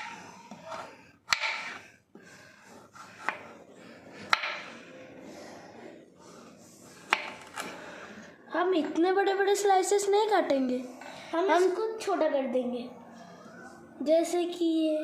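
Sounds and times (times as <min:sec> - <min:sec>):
knife chopping carrot on board: 0:01.3 - 0:01.8, 0:04.2 - 0:04.7.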